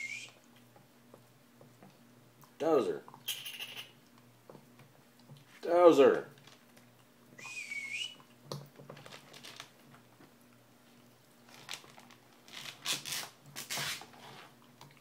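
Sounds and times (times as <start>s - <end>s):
dog chewing crinkly toy: 8.9s - 10.0s, 11.4s - 14.6s.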